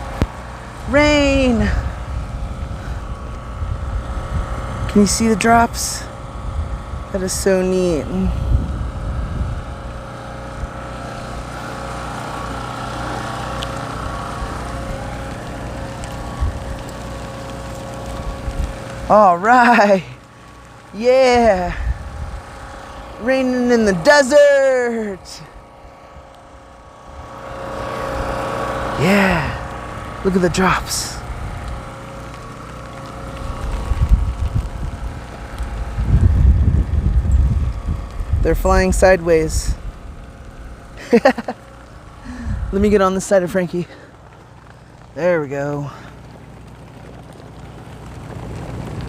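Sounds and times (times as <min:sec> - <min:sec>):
wind buffeting microphone: 0:00.0 - 0:10.8, 0:14.0 - 0:16.9, 0:18.0 - 0:19.1, 0:21.3 - 0:23.2, 0:31.2 - 0:32.0, 0:33.4 - 0:40.8, 0:42.2 - 0:43.0
generator engine running: 0:00.0 - 0:49.0.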